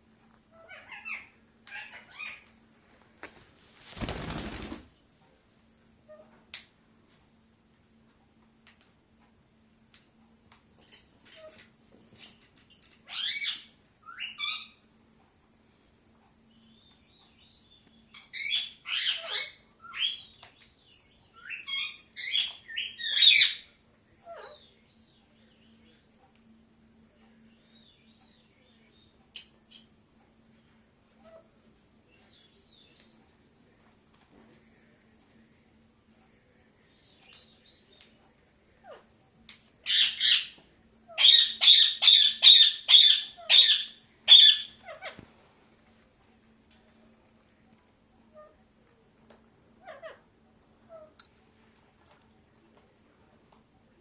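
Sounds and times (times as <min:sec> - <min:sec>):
parrot squawking: 0:41.1 - 0:45.2
parakeet screeching: 0:41.2 - 0:45.2.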